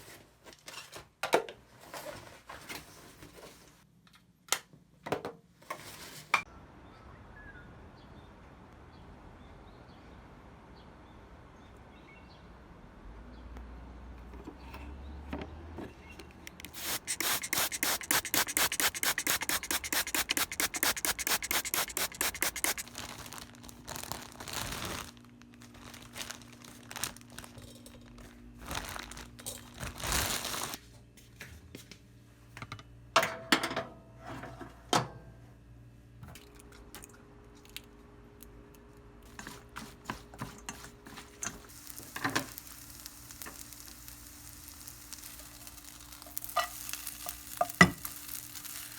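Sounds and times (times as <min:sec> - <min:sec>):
fast scraping strokes: 0:16.7 - 0:22.9.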